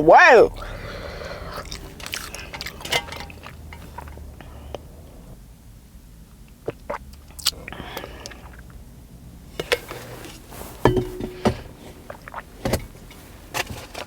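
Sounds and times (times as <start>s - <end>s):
containers and utensils clinking: 1.5s - 4.3s, 9.6s - 14.0s.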